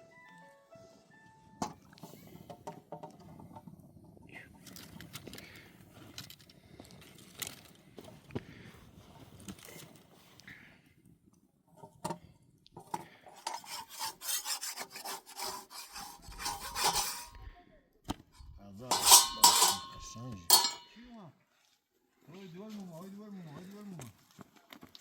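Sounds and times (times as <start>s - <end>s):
rubbing and scraping: 12.8s - 17.4s, 18.4s - 20.9s.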